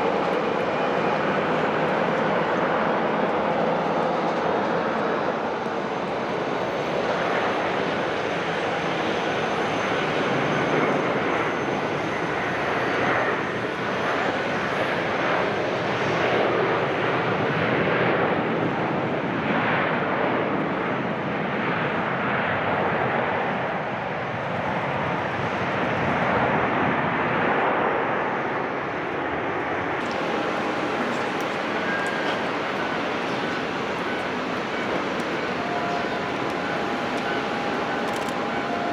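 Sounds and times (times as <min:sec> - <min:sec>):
jet engines rushing: 0:00.0 - 0:13.1, 0:30.0 - 0:38.9.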